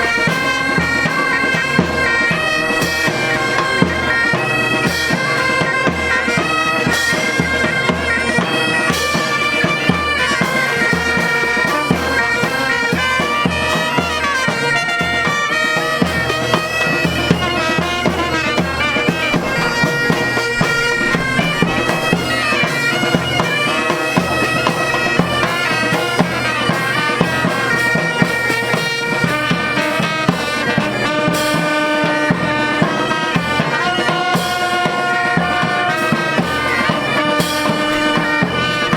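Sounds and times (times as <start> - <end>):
bagpipe band playing: 0.0 - 38.9
drum beats: 0.0 - 38.9.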